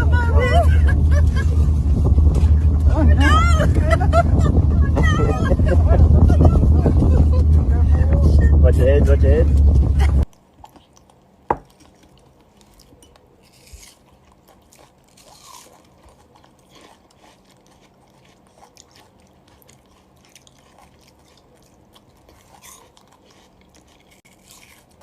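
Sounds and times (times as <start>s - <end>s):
faint crunching: 9.5s - 25.0s.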